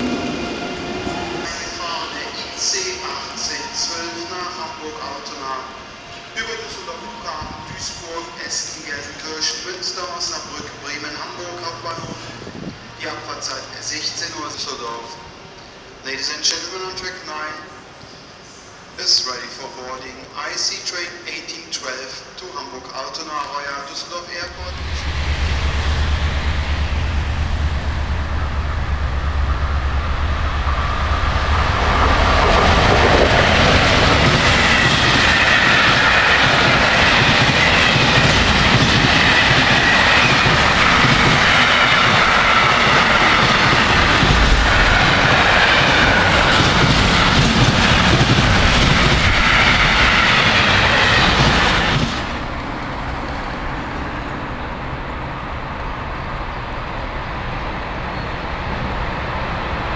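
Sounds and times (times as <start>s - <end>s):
steady rumble: 24.4s - 34.8s
train wheels clattering on rails: 30.8s - 53.4s.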